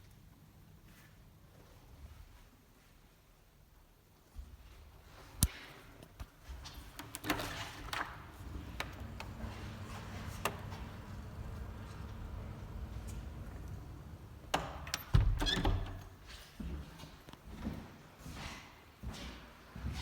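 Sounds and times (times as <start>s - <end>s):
low steady rumble: 8.5s - 14.6s.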